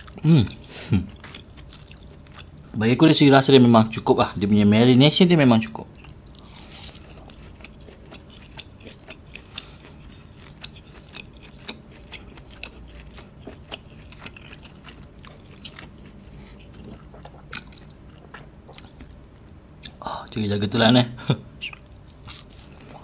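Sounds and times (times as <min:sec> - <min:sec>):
chewing meat: 0:00.0 - 0:02.8, 0:05.9 - 0:19.2, 0:21.6 - 0:23.0.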